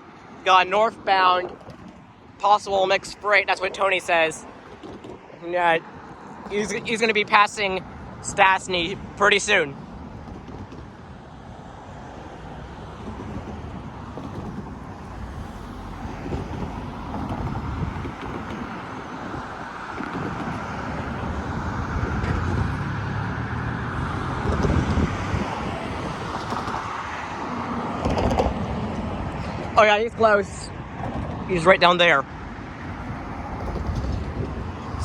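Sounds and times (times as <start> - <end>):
hum of passing traffic: 0.0 - 35.0.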